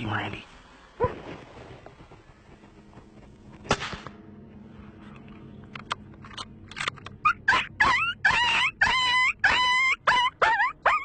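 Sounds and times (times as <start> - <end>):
wild canine yelping: 7.2 - 11.0.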